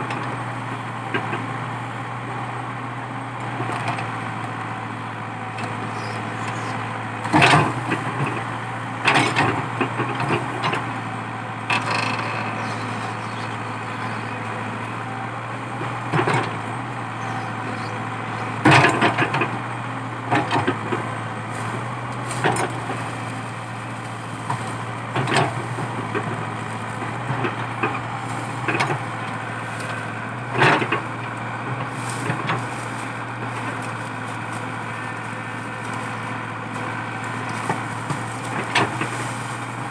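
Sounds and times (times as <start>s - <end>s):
excavator diesel engine running: 0.0s - 39.9s
wood and roots cracking: 5.1s - 39.9s.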